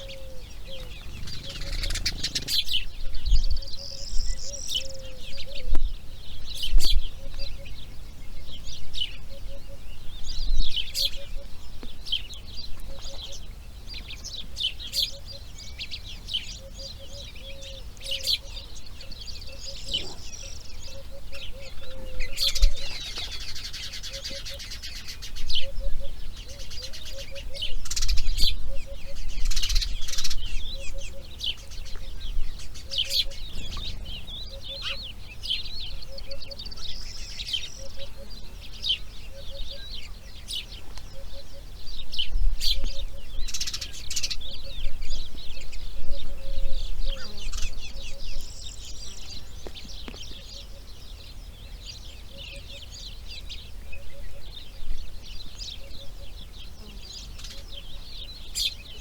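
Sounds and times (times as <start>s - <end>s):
faint low bird call: 0.0s - 5.9s
birds chirping: 0.0s - 59.0s.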